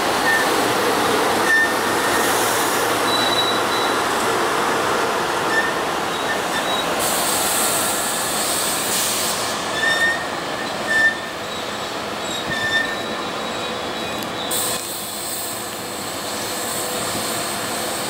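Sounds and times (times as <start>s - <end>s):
train wheels rushing on rail: 0.0s - 18.0s
high-pitched squeaks: 5.5s - 7.0s, 9.7s - 14.7s.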